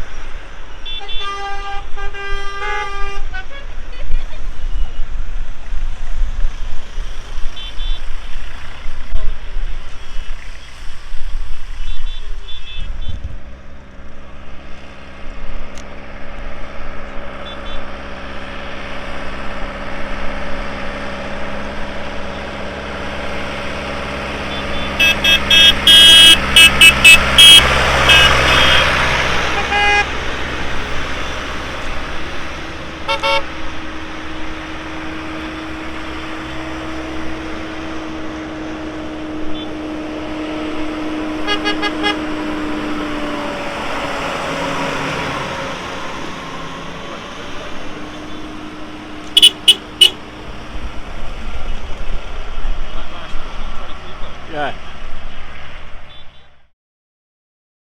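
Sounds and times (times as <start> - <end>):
tractor engines passing: 0.0 - 56.7
short horn toots: 24.5 - 30.1, 33.1 - 33.5, 41.4 - 42.2, 49.4 - 50.2.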